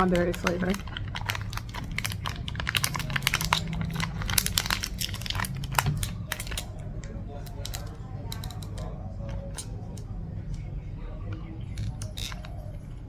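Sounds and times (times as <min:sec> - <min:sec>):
plastic wrapper crinkling: 0:00.0 - 0:06.8.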